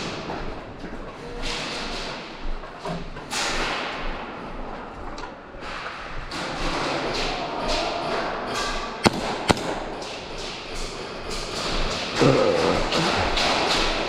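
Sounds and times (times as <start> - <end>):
airsoft gunshots: 9.0 - 10.5
loud cracks: 9.0 - 10.5.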